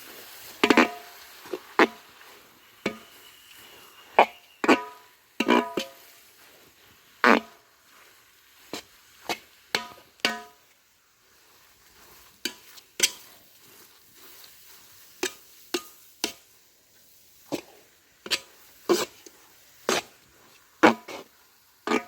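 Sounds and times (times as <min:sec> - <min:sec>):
faint steady hiss: 0:00.0 - 0:22.0
utensil knocking and scraping a pot: 0:00.6 - 0:01.1, 0:02.8 - 0:03.5, 0:04.2 - 0:06.1, 0:09.3 - 0:10.7, 0:12.4 - 0:13.4, 0:15.2 - 0:16.5.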